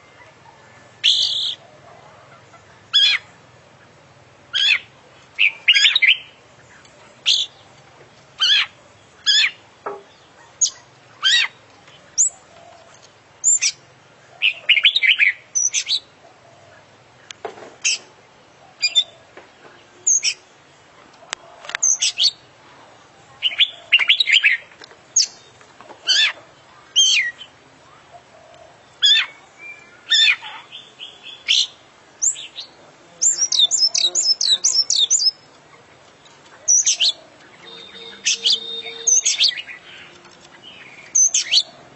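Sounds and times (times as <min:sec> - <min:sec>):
magpie-robin singing whistled notes: 0:04.6 - 0:06.3, 0:13.4 - 0:13.8, 0:14.4 - 0:16.0, 0:29.0 - 0:35.5, 0:36.7 - 0:40.1, 0:40.7 - 0:41.8.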